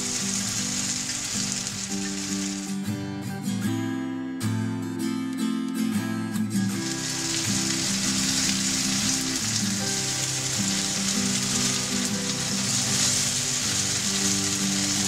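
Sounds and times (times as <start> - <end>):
patties sizzling in frying pan: 0.0 - 2.7, 6.8 - 15.0
background music: 0.0 - 15.0.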